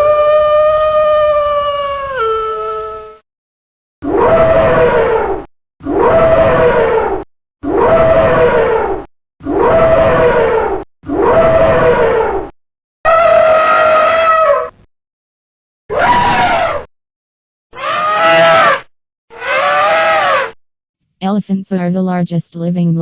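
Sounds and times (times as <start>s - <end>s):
elephant trumpeting: 13.1s - 14.7s, 15.9s - 16.8s, 17.8s - 20.5s.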